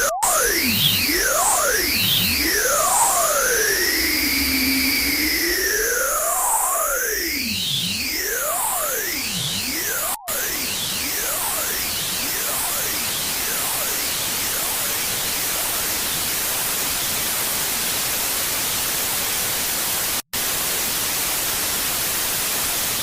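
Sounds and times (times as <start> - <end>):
sweeping tones: 0.0 - 10.0
loud static hiss: 0.0 - 23.0.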